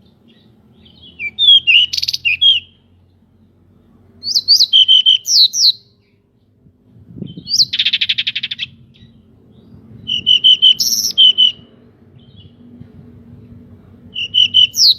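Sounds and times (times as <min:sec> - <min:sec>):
bird repeated notes and whistles: 0:01.0 - 0:02.8, 0:04.2 - 0:05.9, 0:07.2 - 0:09.2, 0:10.1 - 0:11.7, 0:14.2 - 0:14.9
faint low hum: 0:05.7 - 0:14.8.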